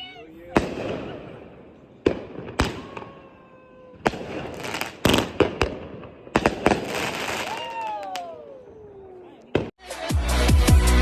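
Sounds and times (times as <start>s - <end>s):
firework crackling: 0.5s - 8.6s
firework shells banging: 4.0s - 8.1s.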